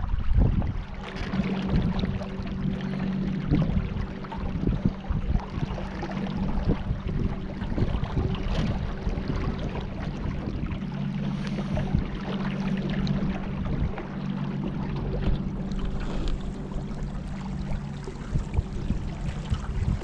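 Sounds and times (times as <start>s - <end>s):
low motor hum: 0.0s - 20.0s
water lapping against boat: 0.0s - 20.0s
wind gusts: 15.2s - 20.0s.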